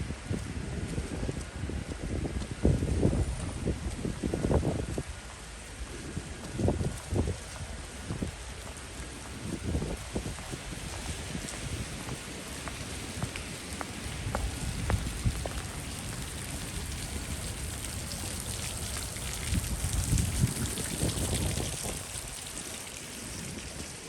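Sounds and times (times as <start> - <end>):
rain falling: 0.1 - 24.0
raindrops ticking: 8.5 - 24.0.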